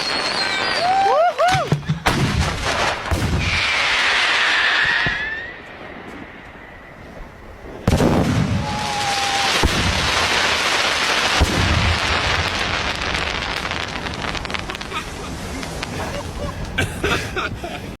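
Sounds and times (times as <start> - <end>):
firework whistle: 0.0 - 1.9, 3.3 - 12.5
fireworks crackling: 0.0 - 17.6.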